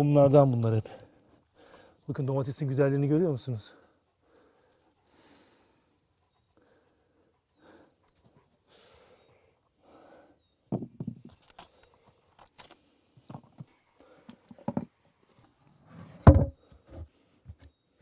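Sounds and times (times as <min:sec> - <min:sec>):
knocks and thumps: 0:10.7 - 0:11.3, 0:14.6 - 0:14.9, 0:16.2 - 0:17.0.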